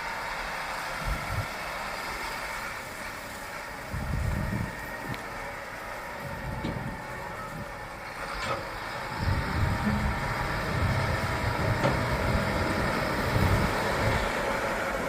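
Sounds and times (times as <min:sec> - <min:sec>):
farm machinery engine running: 0:00.0 - 0:15.0
deep low rumble: 0:09.1 - 0:14.2.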